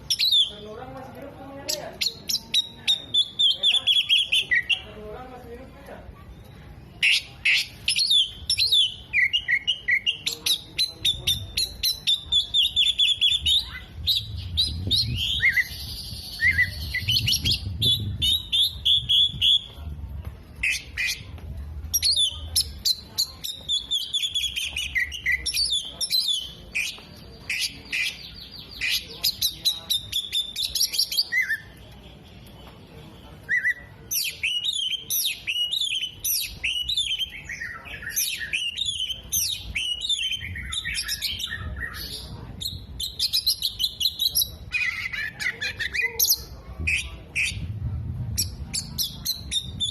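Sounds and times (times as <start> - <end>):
bird singing chirps and trills: 0.0 - 0.7, 6.3 - 19.7, 33.4 - 47.7.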